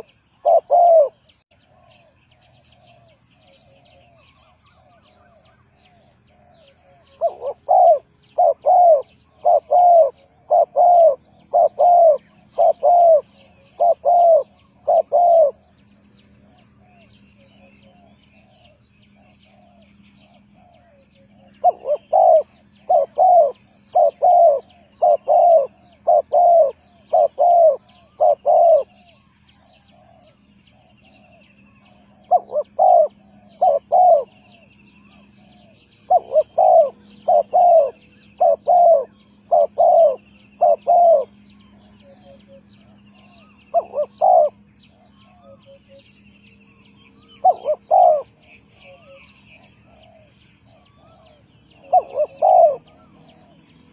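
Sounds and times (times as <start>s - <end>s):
dove cooing: 0.0s - 46.2s, 47.2s - 53.9s
small birds chirping: 0.0s - 53.9s
steady low hum: 0.0s - 53.9s.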